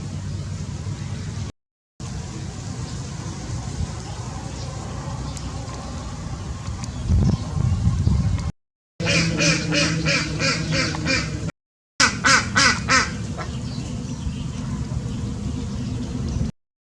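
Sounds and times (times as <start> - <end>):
steady background hum: 0.0 - 7.8, 9.0 - 16.5
bird giving rapid repeated calls: 9.0 - 15.3.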